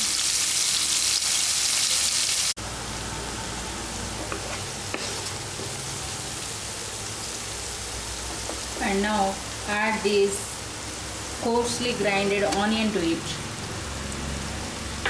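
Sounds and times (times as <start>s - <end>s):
paste sizzling in hot oil: 0.0s - 2.6s, 4.0s - 10.0s.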